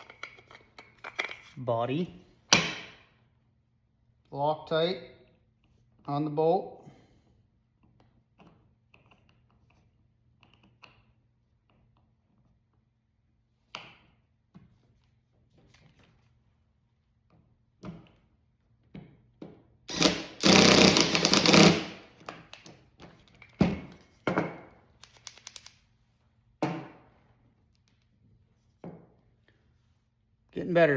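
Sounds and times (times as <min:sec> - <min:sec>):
small metal parts clicking and knocking: 0:25.0 - 0:25.8.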